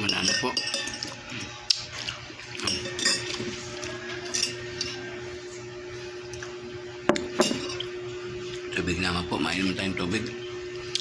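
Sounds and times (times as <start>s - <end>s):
utensils clinking against dish: 0.0s - 5.2s, 7.1s - 7.9s.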